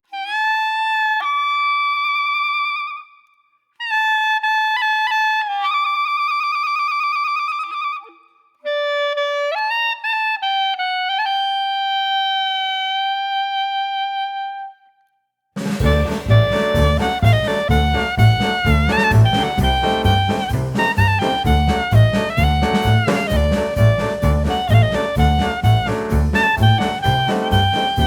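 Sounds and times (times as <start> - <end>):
wind instrument slow melody: 8.7 - 14.8, 15.8 - 28.0.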